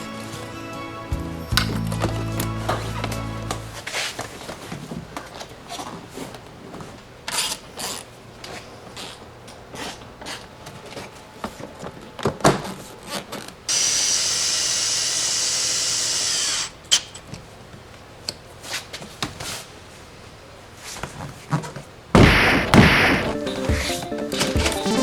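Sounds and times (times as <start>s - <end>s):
power drill running: 13.7s - 17.0s
sudden loud burst: 22.2s - 23.4s.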